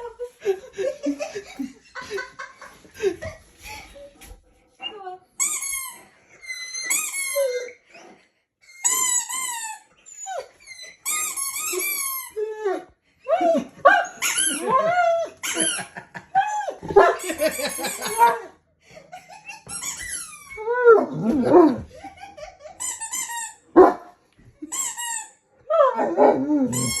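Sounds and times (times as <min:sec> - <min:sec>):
high-pitched squeaks: 0:05.4 - 0:07.8, 0:08.7 - 0:12.4, 0:19.5 - 0:20.7, 0:26.7 - 0:27.0
dog whining and howling: 0:06.4 - 0:07.8, 0:20.4 - 0:21.9, 0:25.7 - 0:27.0.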